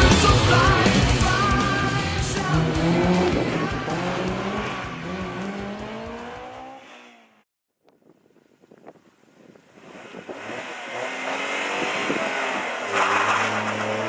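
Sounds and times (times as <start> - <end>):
rock music: 0.0 - 6.6
car engine accelerating hard: 0.0 - 7.4, 9.7 - 14.0.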